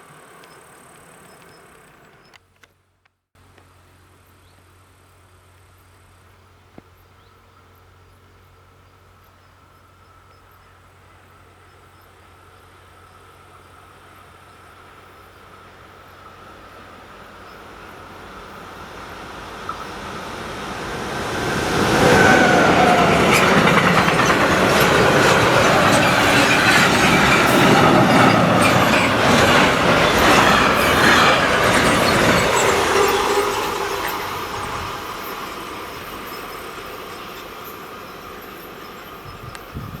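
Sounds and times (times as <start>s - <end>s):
train wheels clattering on rails: 16.2s - 39.7s.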